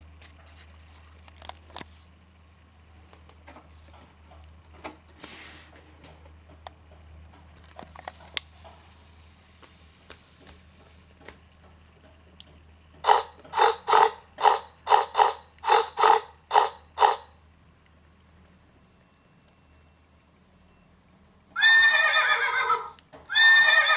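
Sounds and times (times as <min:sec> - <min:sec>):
farm animal calling: 0:13.0 - 0:17.4, 0:21.6 - 0:23.9.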